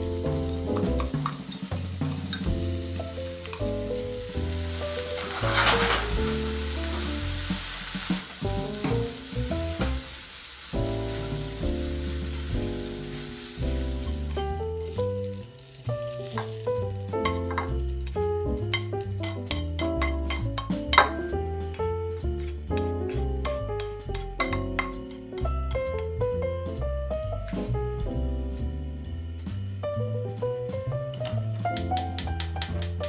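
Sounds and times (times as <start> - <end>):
background music with bass line: 0.0 - 10.1, 10.8 - 33.0
vegetables sizzling in a frying pan: 0.0 - 21.8.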